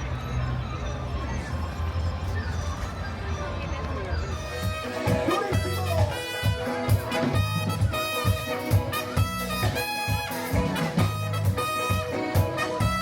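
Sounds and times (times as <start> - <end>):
brass horns holding notes: 4.4 - 13.0
steady bass beat: 4.5 - 13.0.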